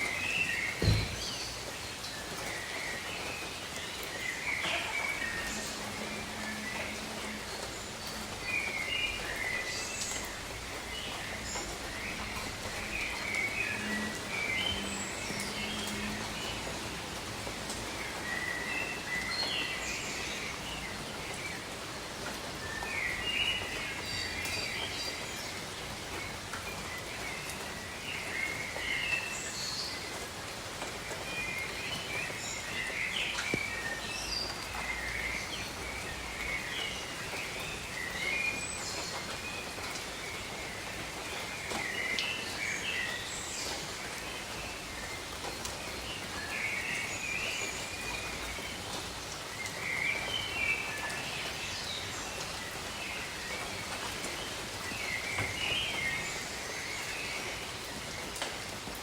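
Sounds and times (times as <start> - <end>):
steady rain falling: 0.0 - 59.0
birds chirping: 0.1 - 16.7.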